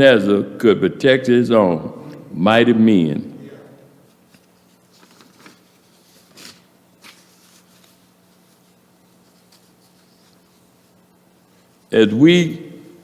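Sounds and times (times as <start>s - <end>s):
low steady hum: 0.0s - 13.0s
paper rustling: 4.1s - 11.9s.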